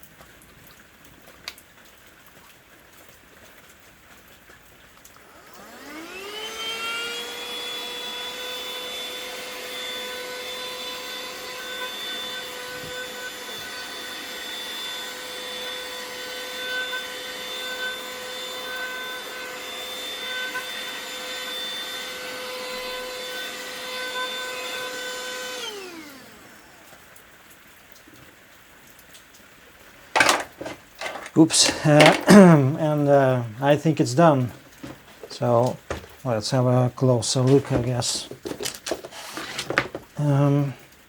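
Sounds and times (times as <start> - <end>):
vacuum cleaner motor whine: 5.2 - 27.0, 30.2 - 32.3.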